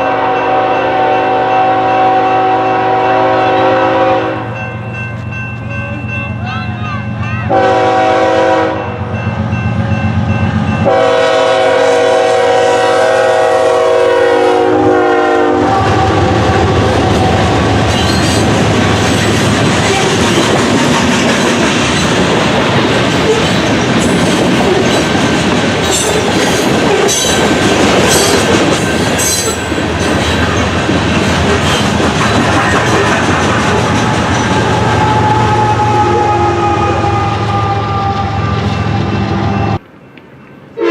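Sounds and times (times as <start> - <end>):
train horn blasts: 0.0 - 4.6, 7.0 - 9.2, 10.8 - 18.4, 33.8 - 39.8
train wheels clattering on rails: 17.0 - 35.6.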